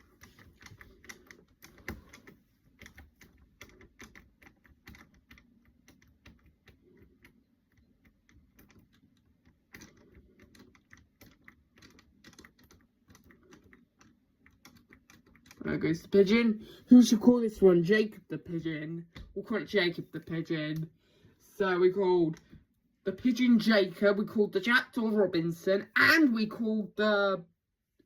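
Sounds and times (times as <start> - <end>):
faint clicking and tapping: 0.0 - 17.0
low background hum: 0.0 - 28.0.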